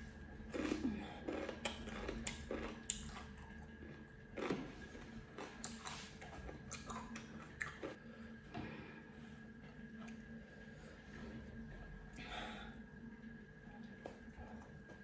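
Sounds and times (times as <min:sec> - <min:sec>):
person chewing cucumber: 0:00.0 - 0:08.0.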